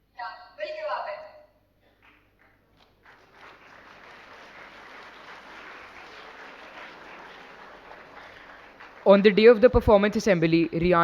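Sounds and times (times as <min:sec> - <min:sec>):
audience applause: 0:02.0 - 0:09.6.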